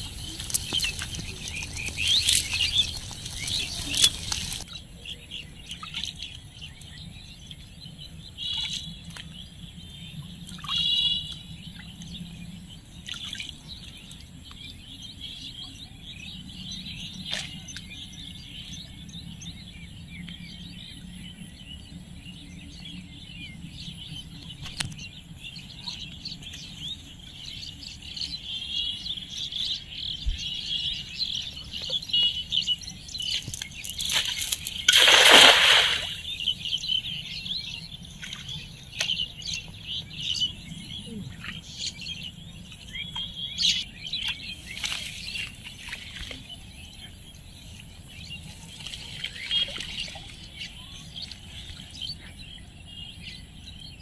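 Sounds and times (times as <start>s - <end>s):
birds chirping and calling: 0.0s - 7.1s, 22.6s - 54.0s.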